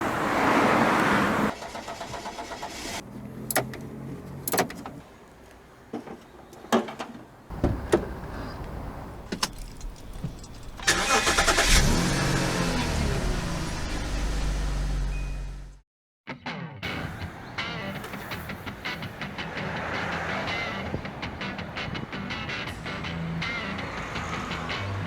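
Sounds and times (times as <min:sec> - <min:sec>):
car engine starting and running: 0:00.0 - 0:05.0, 0:07.5 - 0:15.8.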